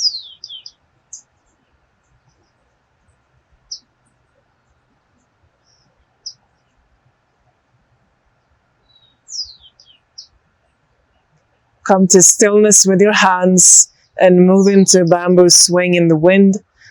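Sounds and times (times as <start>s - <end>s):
bird chirping: 0.0s - 1.3s, 8.8s - 10.4s.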